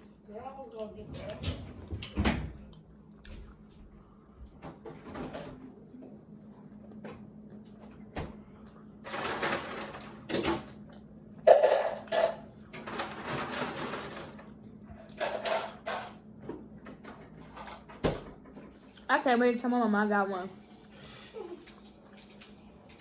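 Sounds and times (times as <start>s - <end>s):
rustling and handling while eating: 0.0s - 11.4s, 12.0s - 23.0s
faint low hum: 0.0s - 12.8s.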